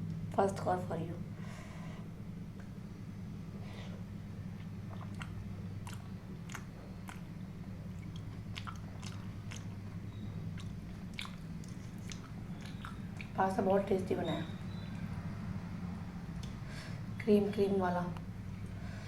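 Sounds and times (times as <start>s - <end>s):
steady low hum: 0.0s - 19.0s
chewing pasta: 4.4s - 13.4s
wet mouth clicks: 4.6s - 7.3s, 8.0s - 9.8s, 10.5s - 13.4s.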